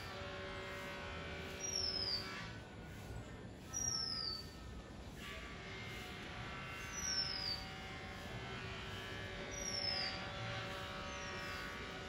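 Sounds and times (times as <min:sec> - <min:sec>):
steady multi-tone hum: 0:00.0 - 0:12.0
birds whistling: 0:01.6 - 0:02.4, 0:03.7 - 0:04.6, 0:06.9 - 0:07.7, 0:09.5 - 0:10.3.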